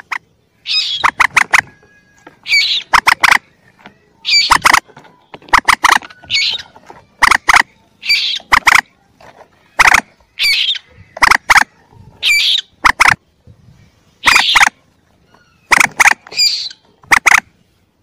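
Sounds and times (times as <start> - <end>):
moorhen chick calls: 0.0 - 9.0, 9.7 - 13.2, 14.2 - 17.6.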